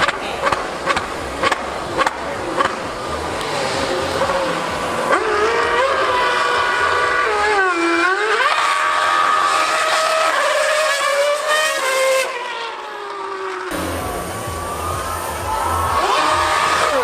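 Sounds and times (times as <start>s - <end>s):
racing engine revving: 0.0s - 17.0s.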